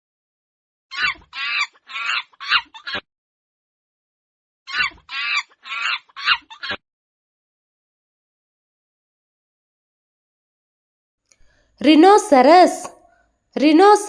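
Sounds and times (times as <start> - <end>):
chimpanzee hooting: 0.9 - 3.0, 4.7 - 6.8.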